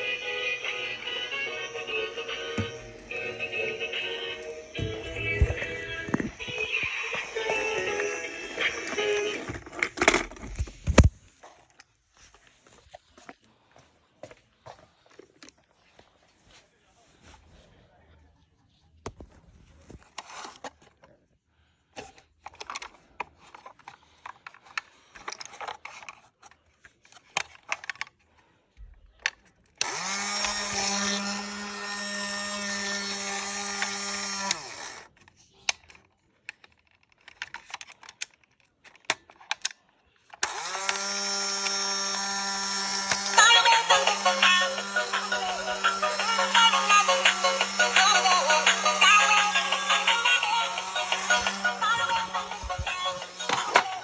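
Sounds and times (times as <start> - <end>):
toy electric motor whirring: 0.0 - 10.2, 29.8 - 35.2, 40.3 - 54.0
plastic clicks and rattles: 22.0 - 28.2, 35.2 - 41.0.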